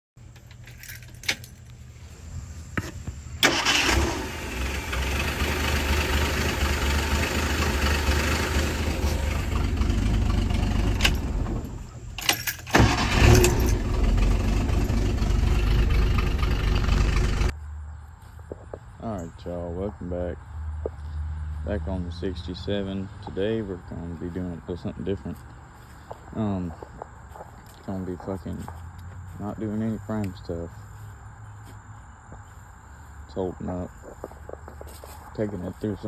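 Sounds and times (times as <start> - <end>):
engine starting and running: 3.4 - 17.5.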